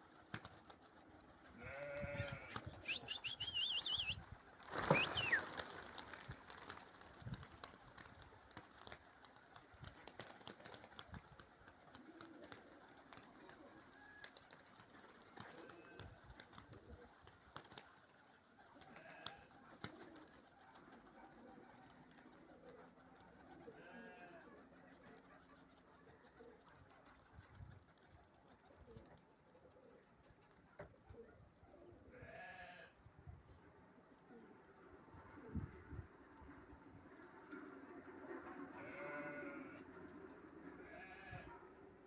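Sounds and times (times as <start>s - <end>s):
pigeons cooing: 2.0s - 5.9s.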